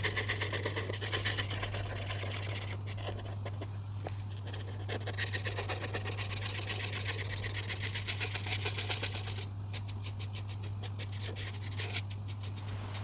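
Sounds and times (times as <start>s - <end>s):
coloring tool scratching on paper: 0.0s - 13.0s
steady low hum: 7.2s - 13.0s.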